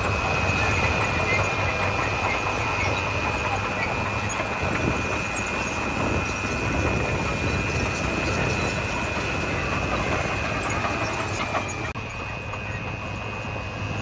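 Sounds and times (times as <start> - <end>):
diesel engine rumble: 0.0 - 14.0.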